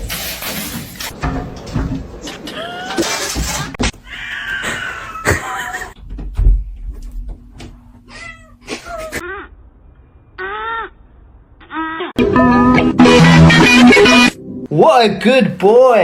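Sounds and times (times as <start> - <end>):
cats meowing: 3.9 - 5.9.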